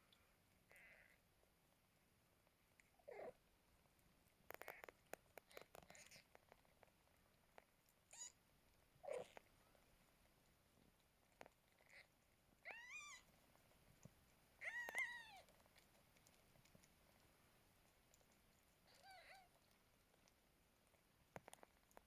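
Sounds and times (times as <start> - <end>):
kittens mewing: 9.0 - 9.4, 14.6 - 15.5.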